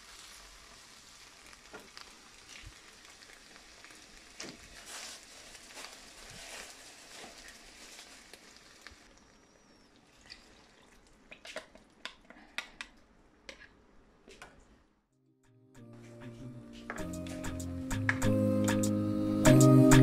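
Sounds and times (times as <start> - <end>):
vegetables frying in oil: 0.0 - 10.7.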